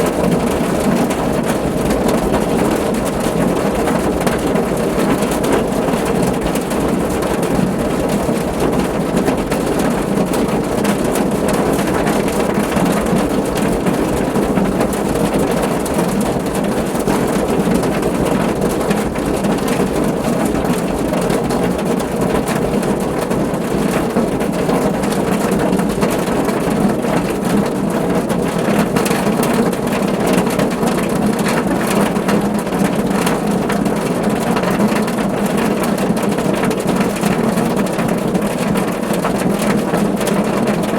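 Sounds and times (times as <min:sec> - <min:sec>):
rain drumming on a car roof: 0:00.0 - 0:40.9.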